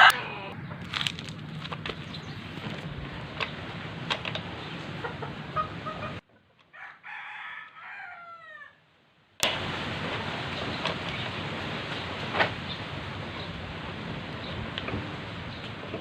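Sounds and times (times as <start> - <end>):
rooster crowing: 0.0 - 1.2, 6.7 - 8.8
steady noisy background: 0.0 - 6.2
scattered clicks and knocks: 0.9 - 5.5.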